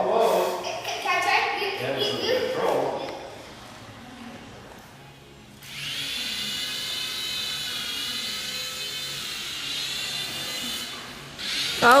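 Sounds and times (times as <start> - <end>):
toy helicopter motor whine: 5.6 - 12.0.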